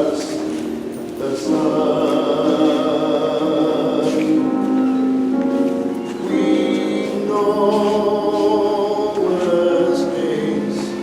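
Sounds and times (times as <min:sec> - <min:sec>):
choir singing a hymn: 0:00.0 - 0:11.0.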